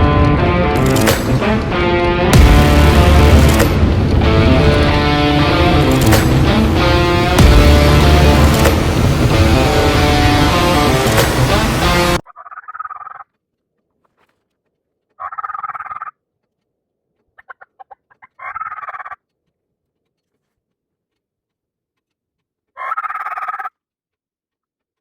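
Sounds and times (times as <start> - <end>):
turkey clucking: 12.3 - 13.3, 15.2 - 16.1, 17.4 - 19.2, 22.8 - 23.7
turkey gobbling: 12.3 - 13.3, 15.2 - 16.2, 17.4 - 19.2, 22.8 - 23.7.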